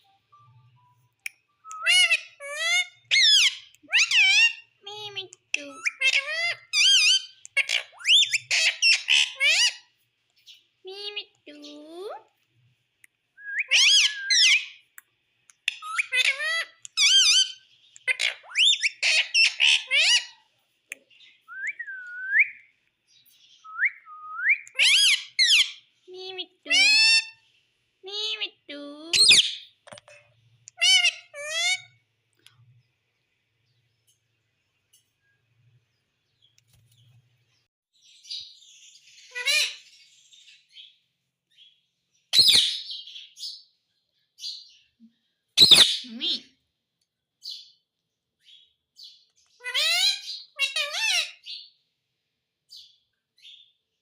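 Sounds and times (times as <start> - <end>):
parrot squawking: 1.7 - 9.8, 13.6 - 14.8, 15.7 - 20.4, 24.7 - 27.4, 29.1 - 29.7, 30.8 - 32.0, 39.3 - 39.8, 42.4 - 42.9, 45.6 - 46.5, 49.6 - 51.6.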